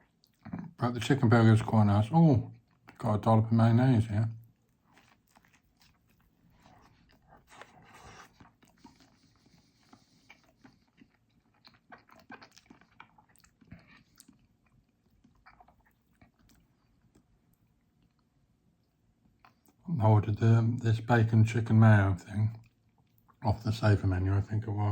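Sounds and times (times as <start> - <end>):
person chewing food: 0.0 - 0.8, 2.5 - 3.0, 4.4 - 19.8, 22.5 - 23.4.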